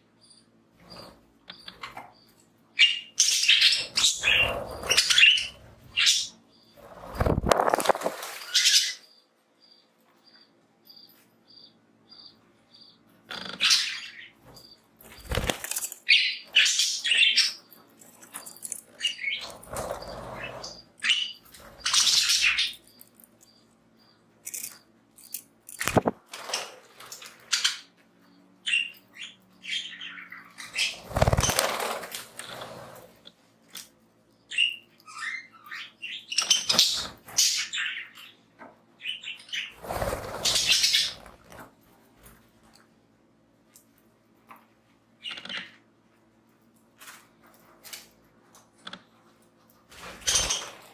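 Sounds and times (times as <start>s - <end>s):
budgies chirping: 0.2s - 10.5s, 11.5s - 24.8s, 27.4s - 32.8s, 34.5s - 38.4s, 39.0s - 41.6s
wings flapping and rustling: 6.8s - 8.8s, 15.0s - 16.1s, 18.0s - 20.8s, 30.8s - 33.1s, 39.8s - 42.4s, 49.8s - 50.9s.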